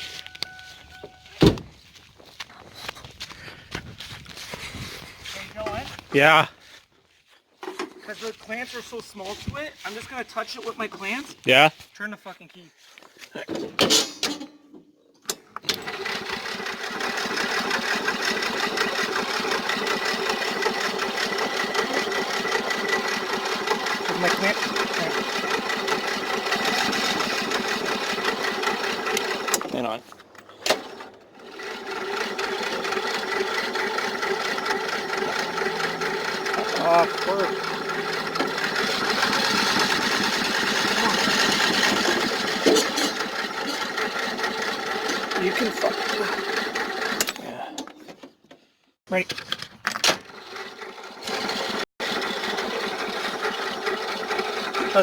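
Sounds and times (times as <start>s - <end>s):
electric starter cranking engine: 15.3s - 47.5s, 49.9s - 55.0s
starter clicks: 17.9s - 45.4s.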